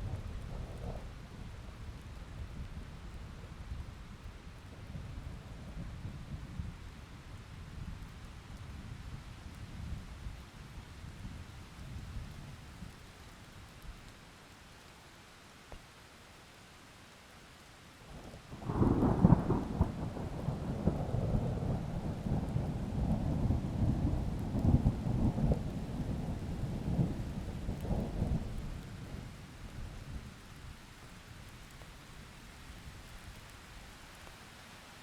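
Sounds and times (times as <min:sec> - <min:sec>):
steady rain: 0:00.0 - 0:35.0
thunder clap rumbling: 0:18.6 - 0:28.6.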